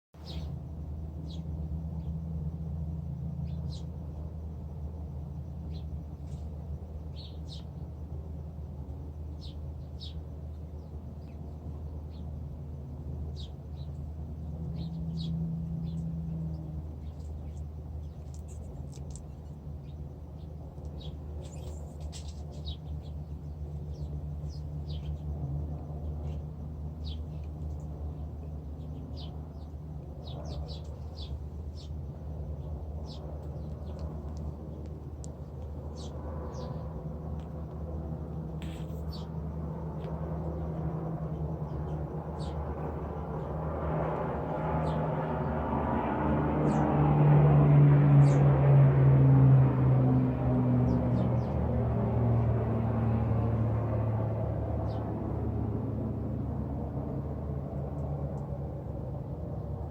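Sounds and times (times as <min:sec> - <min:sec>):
wrens chirping: 0:00.2 - 0:02.2, 0:03.4 - 0:08.1, 0:08.8 - 0:45.6, 0:46.6 - 0:46.9, 0:48.2 - 0:48.5, 0:50.9 - 0:51.6, 0:54.8 - 0:55.0
steady low rumble: 0:00.2 - 0:59.9.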